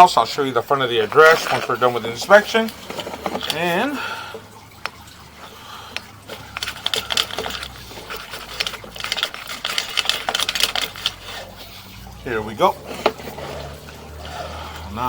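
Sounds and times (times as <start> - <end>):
camera cable clicking and rattling: 6.0 - 11.4.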